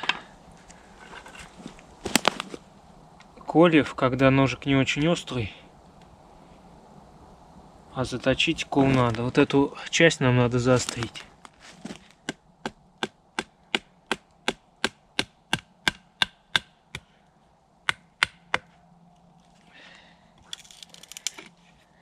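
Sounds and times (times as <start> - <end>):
rustling of wood and debris: 0.0 - 3.4, 8.2 - 12.4
sharp wooden knocks of chopping: 12.2 - 17.1, 17.9 - 18.7.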